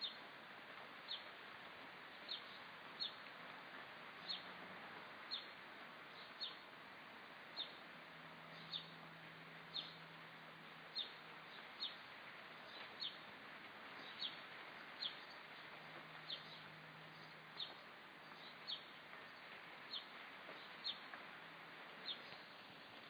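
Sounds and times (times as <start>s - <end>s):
outdoor hiss: 0.0s - 23.0s
bird chirping: 2.3s - 3.2s, 4.2s - 4.5s, 5.3s - 5.5s, 6.1s - 6.6s, 7.6s - 7.8s, 8.5s - 9.0s, 9.7s - 10.0s, 10.9s - 12.0s, 12.6s - 13.2s, 14.0s - 21.1s, 22.0s - 22.6s.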